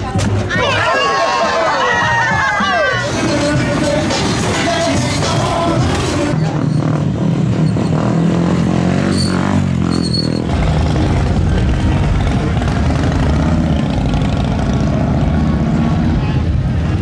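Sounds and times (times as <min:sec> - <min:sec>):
motorcycle engines rumbling: 0:00.0 - 0:17.0
music: 0:01.4 - 0:06.4.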